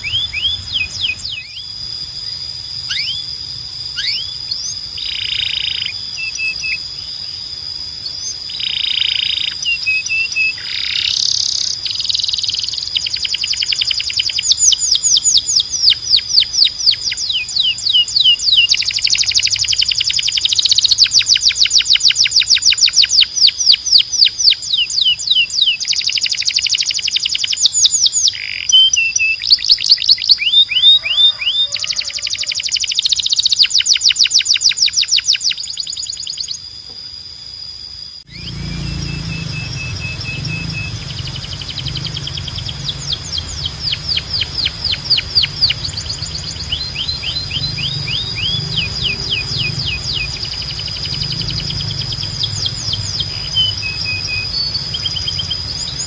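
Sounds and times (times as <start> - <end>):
canary singing trills: 0.0 - 37.0, 37.9 - 56.0
harsh buzzy bird notes: 38.2 - 56.0.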